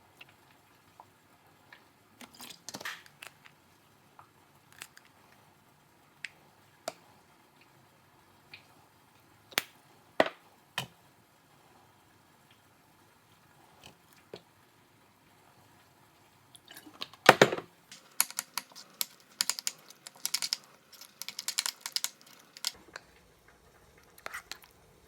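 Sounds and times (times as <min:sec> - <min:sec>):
light clicks and taps: 0:17.9 - 0:23.1.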